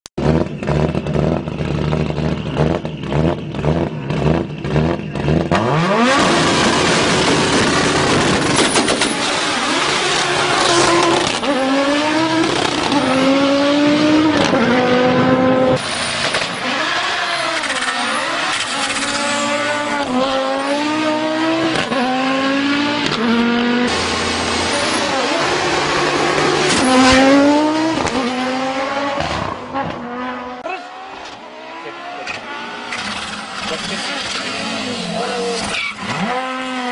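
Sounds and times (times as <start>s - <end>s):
car engine revving and accelerating: 0.2s - 36.9s
tyre squeal: 15.8s - 20.0s, 32.9s - 36.5s.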